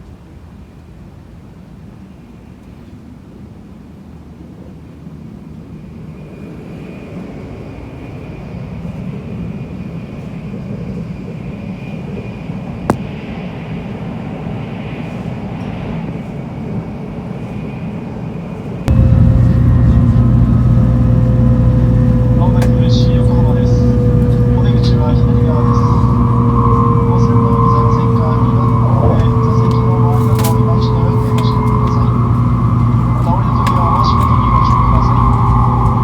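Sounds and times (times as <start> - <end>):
heavy deep hum: 18.9 - 36.0
train running noise: 18.9 - 36.0.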